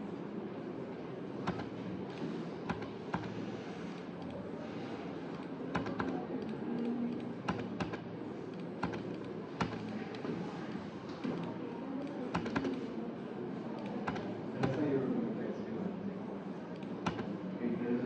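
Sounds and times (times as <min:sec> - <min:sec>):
room hum: 0:00.0 - 0:18.0
computer keyboard keystrokes: 0:01.4 - 0:01.7, 0:05.4 - 0:10.0, 0:11.4 - 0:12.8, 0:13.8 - 0:14.8, 0:16.8 - 0:17.3.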